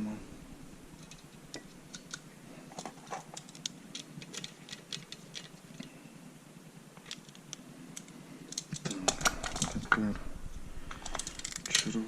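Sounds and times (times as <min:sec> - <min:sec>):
clicks of small parts handled: 0:07.0 - 0:10.0, 0:10.9 - 0:12.0.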